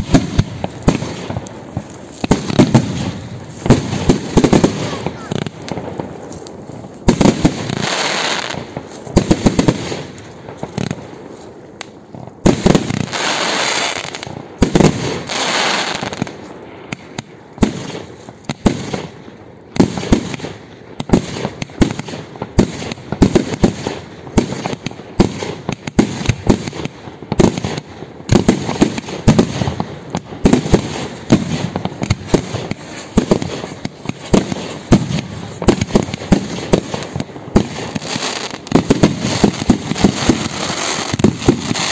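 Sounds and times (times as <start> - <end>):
fireworks bursting with sharp bangs: 0.0 - 41.9
fireworks hiss and crackle: 0.0 - 41.9.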